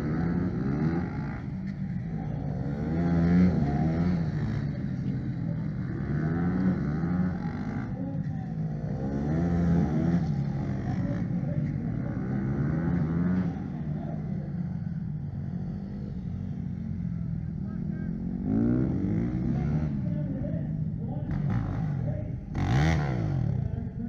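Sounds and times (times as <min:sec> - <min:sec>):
motorcycle engine revving hard: 0:02.2 - 0:08.0, 0:08.7 - 0:11.4, 0:21.3 - 0:23.8.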